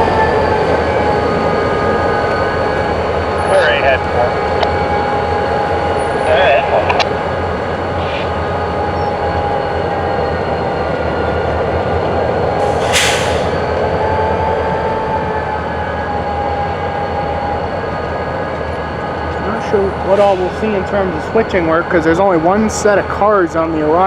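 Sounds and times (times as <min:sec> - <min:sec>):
freight train rumble: 0:00.0 - 0:24.0
short hiss: 0:12.7 - 0:13.6.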